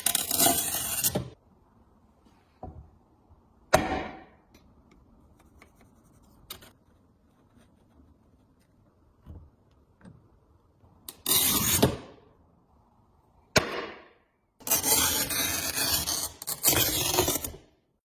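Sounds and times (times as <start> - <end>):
tile cutter scraping across tile: 0.0 - 1.4, 11.1 - 12.1, 14.6 - 17.8.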